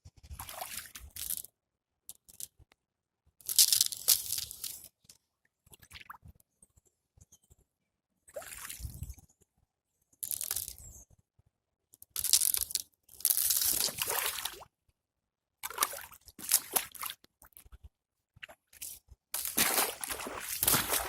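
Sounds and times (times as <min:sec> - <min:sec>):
ice crunching and breaking: 0:19.4 - 0:21.0
water sloshing: 0:19.4 - 0:21.0.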